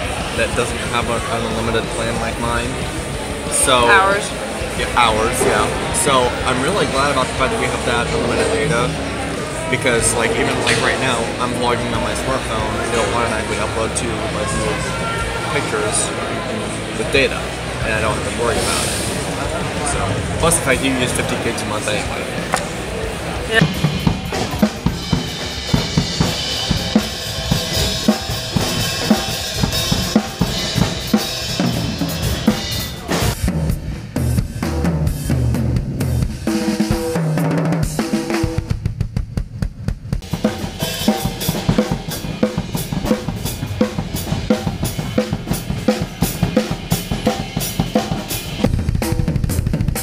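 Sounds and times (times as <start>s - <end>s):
cymbals: 1.9s - 38.8s, 40.2s - 50.0s
snare drum: 36.6s - 50.0s
kick drum: 38.4s - 40.3s.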